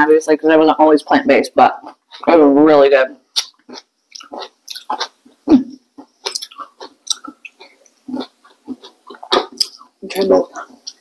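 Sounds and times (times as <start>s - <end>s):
chewing crisp snack food: 3.3s - 11.0s.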